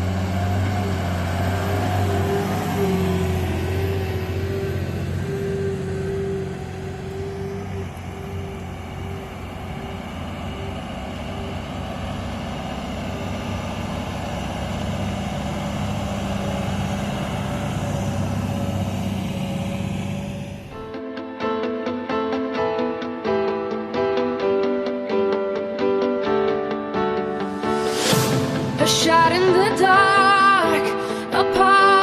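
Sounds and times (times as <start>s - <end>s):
tractor diesel engine under load: 0.0s - 20.8s, 27.6s - 31.3s
high whine: 0.0s - 21.0s, 25.8s - 30.9s.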